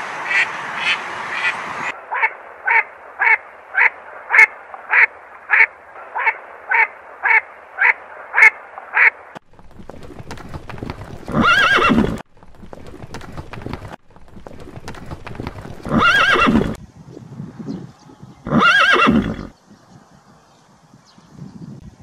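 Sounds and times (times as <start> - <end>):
hoofbeats: 9.4 - 16.8
horses neighing: 9.8 - 16.8, 18.4 - 19.6.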